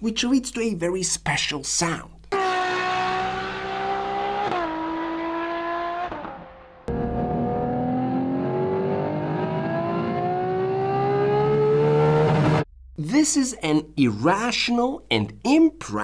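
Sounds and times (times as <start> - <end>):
high-revving engine wail: 2.3 - 12.7.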